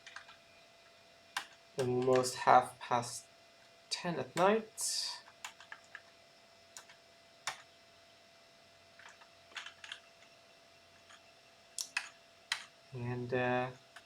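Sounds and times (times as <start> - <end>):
computer keyboard keystrokes: 0.0 - 0.4, 5.4 - 6.1, 6.8 - 7.7, 9.0 - 10.0, 11.0 - 11.2, 11.8 - 12.7.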